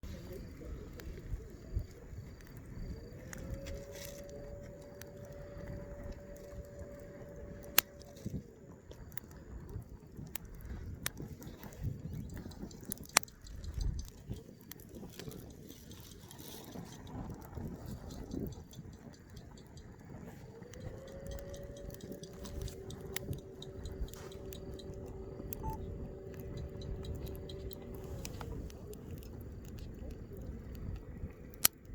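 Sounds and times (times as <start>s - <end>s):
wind rumbling on microphone: 0.0s - 31.9s
wood fire crackling: 0.0s - 31.9s
steady tone: 21.1s - 28.8s.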